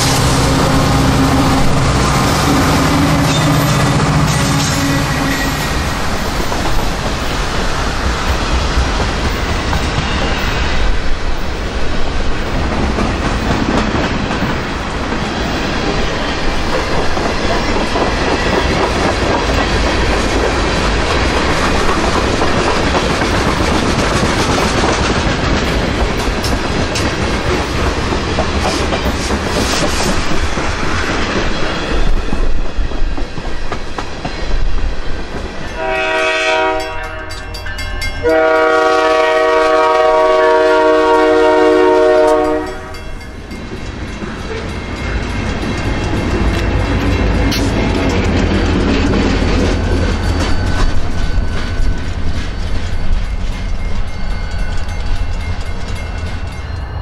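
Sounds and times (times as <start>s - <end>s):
locomotive air horn: 0.0s - 5.9s, 35.8s - 37.5s, 38.2s - 43.0s
freight cars rumbling over rails: 0.0s - 57.0s.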